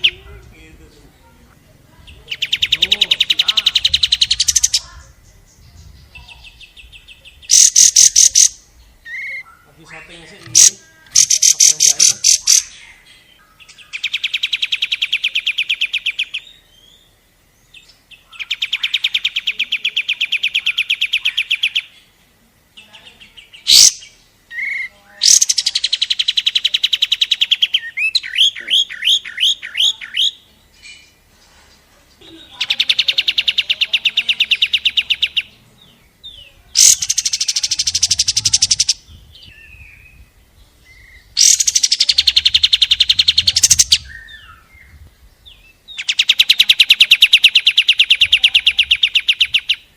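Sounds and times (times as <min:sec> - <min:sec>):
bird chirping trills: 0:00.0 - 0:49.9
upswept bird notes: 0:02.0 - 0:22.2.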